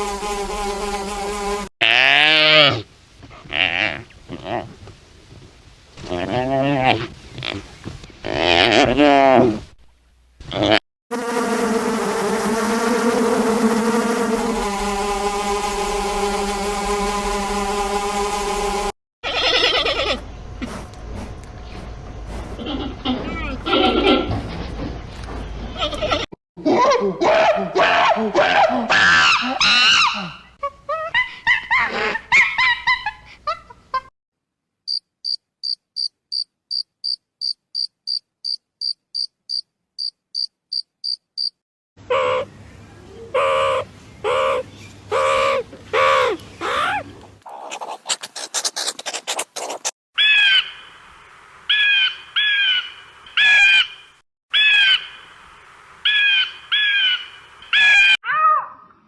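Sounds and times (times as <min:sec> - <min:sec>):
cricket-like chirps: 0:34.9 - 0:41.6
pitched bending animal calls: 0:43.2 - 0:50.5
birdlike calls sweeping downward: 0:43.3 - 0:47.1.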